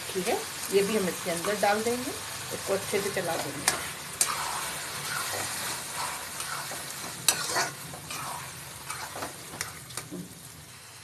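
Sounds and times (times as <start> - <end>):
oil sizzling in a pan: 0.0 - 11.0
spatula scraping and tapping a pan: 3.4 - 10.1.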